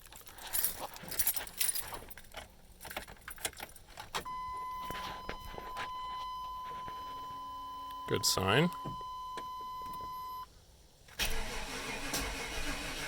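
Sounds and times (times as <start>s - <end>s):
keys jangling: 0.0s - 4.2s
high electronic warning tone: 4.3s - 10.4s.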